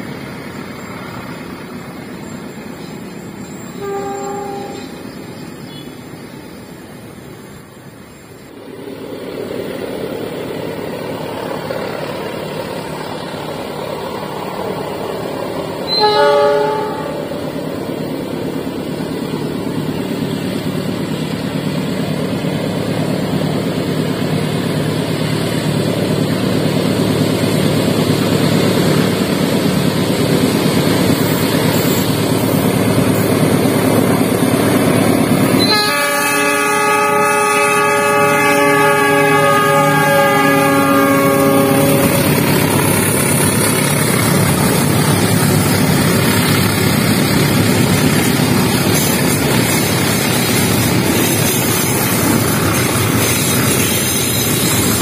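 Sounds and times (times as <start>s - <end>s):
locomotive engine and wheels rumbling: 0.0s - 55.0s
train horn blast: 3.7s - 5.0s, 15.8s - 17.6s, 35.5s - 42.7s.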